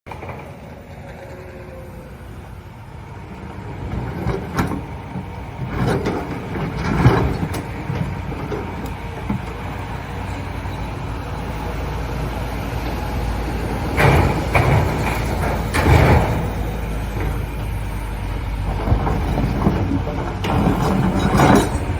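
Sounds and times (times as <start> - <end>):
excavator diesel engine running: 0.1 - 21.9
concrete clattering and scraping: 18.6 - 21.9.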